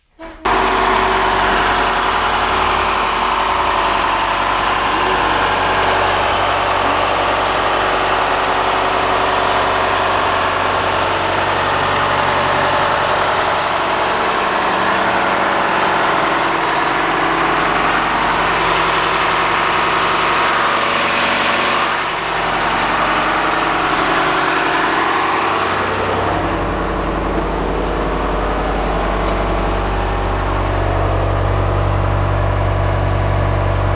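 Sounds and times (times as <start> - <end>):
bus engine idling: 0.0 - 33.9.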